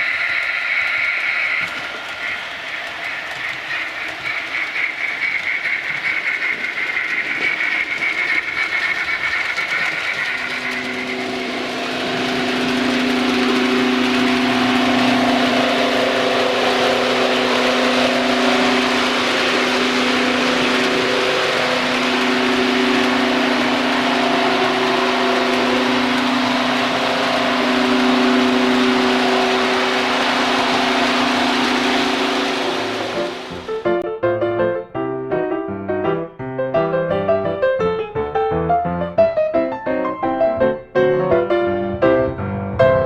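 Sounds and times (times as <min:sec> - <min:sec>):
model train running hum: 0:00.0 - 0:34.0.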